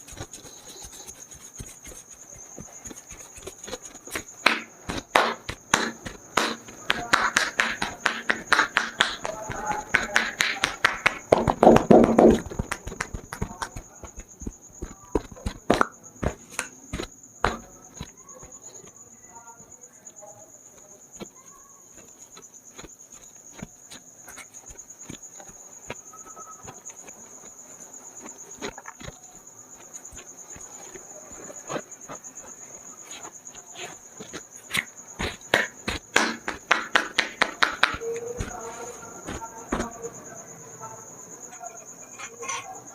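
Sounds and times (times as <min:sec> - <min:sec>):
hands tapping and slapping skin: 0:00.0 - 0:18.6, 0:21.2 - 0:27.5, 0:33.2 - 0:39.9
cricket trilling: 0:00.0 - 0:42.9.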